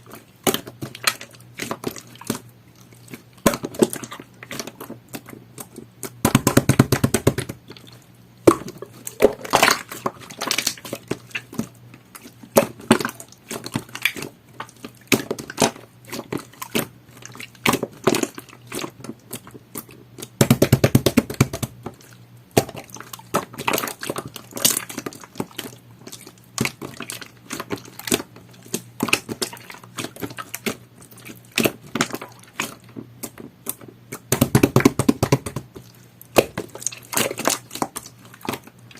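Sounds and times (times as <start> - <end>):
slime squelching: 0.0 - 38.9.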